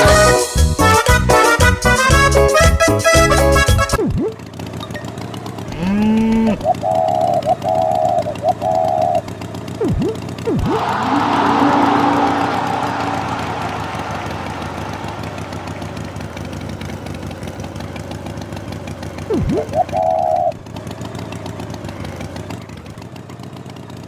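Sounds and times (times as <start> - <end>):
engine chugging: 0.0 - 24.0
high buzzing toot: 5.7 - 6.7, 9.8 - 16.1
swooping whistle: 6.4 - 9.2, 9.8 - 16.3, 19.3 - 20.5.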